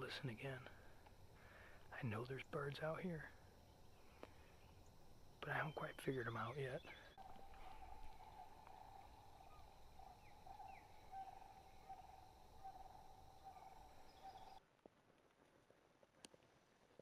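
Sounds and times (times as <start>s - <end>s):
bird chirps: 3.6s - 14.6s.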